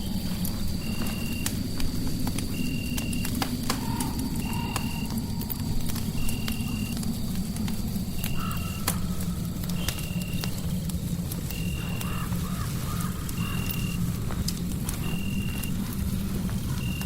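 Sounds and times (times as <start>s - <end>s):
fireplace crackling and popping: 0.0s - 17.0s
low warbling calls: 3.7s - 7.4s.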